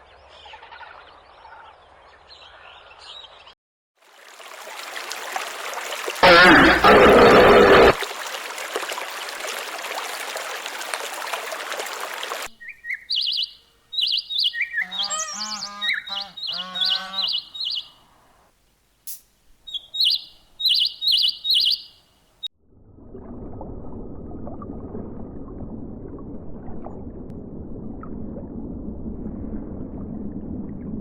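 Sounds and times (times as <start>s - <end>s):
birds chirping: 12.5s - 18.4s, 19.6s - 22.1s.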